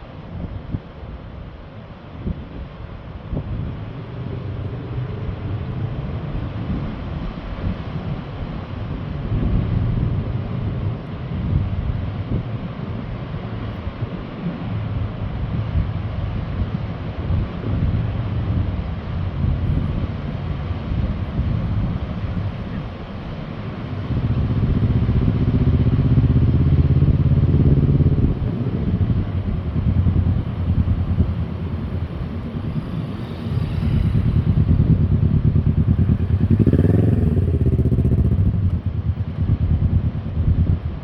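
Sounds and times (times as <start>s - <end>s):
motorcycle engine running: 19.7s - 41.0s.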